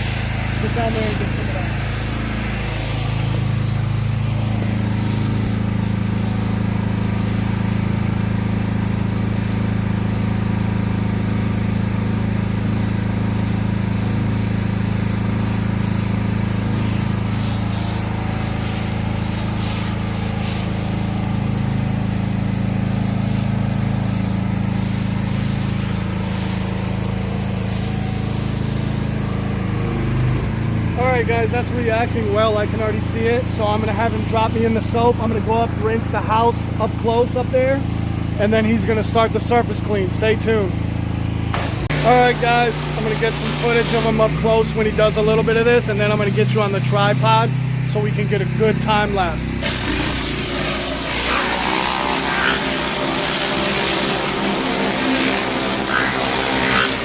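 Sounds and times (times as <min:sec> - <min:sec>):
water spraying hiss: 0:00.0 - 0:29.7, 0:41.5 - 0:47.8, 0:48.9 - 0:57.0
pressure washer engine running: 0:00.0 - 0:57.0.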